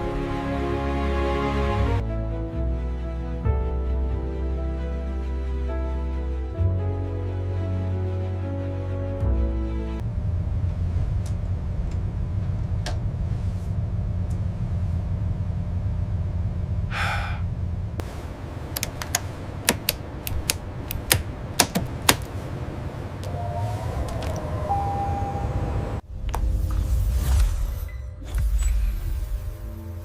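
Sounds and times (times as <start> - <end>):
steady low hum: 10.0 - 26.1
sharp clicks and taps: 18.8 - 22.3.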